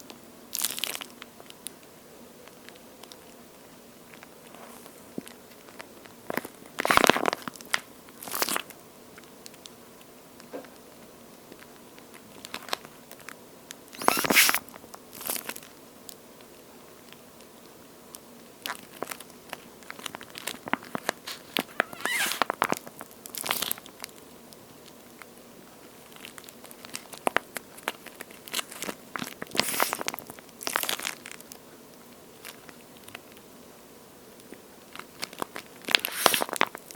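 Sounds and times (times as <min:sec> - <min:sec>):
squeeze toy crackling: 0:00.5 - 0:01.6, 0:05.5 - 0:08.8, 0:13.9 - 0:15.8, 0:18.6 - 0:24.2, 0:25.9 - 0:31.6, 0:34.4 - 0:36.9.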